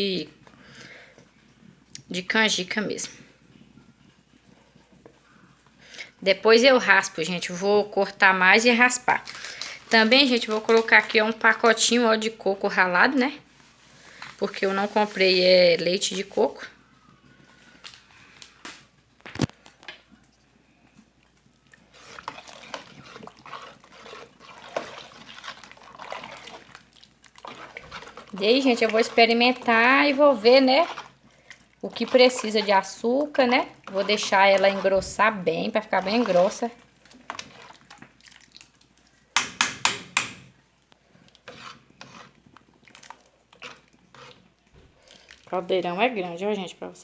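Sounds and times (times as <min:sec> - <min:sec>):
stirring thick liquid in a pot: 0:02.5 - 0:18.3, 0:18.9 - 0:46.5
utensil knocking and scraping a pot: 0:22.0 - 0:26.8, 0:27.4 - 0:38.1, 0:39.4 - 0:40.6, 0:41.4 - 0:44.9.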